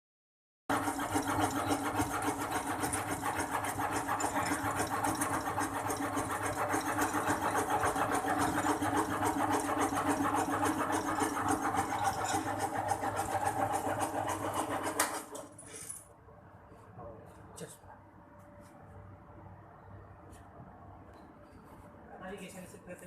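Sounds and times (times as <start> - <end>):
sewing machine motor hum: 0.7 - 15.5.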